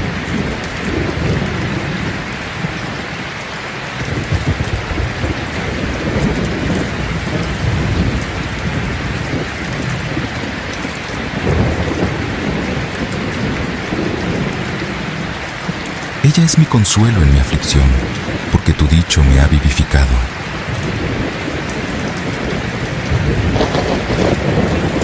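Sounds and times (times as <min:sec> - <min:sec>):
heavy rain: 0:00.0 - 0:25.0
thunder rolling: 0:22.3 - 0:25.0.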